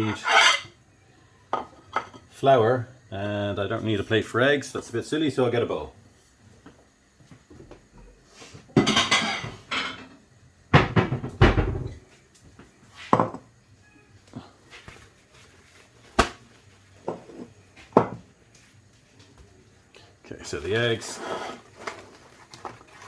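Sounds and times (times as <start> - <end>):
crockery clattering: 0.0 - 0.8, 8.8 - 10.2
bowl set down on counter: 13.1 - 13.5, 17.0 - 18.2.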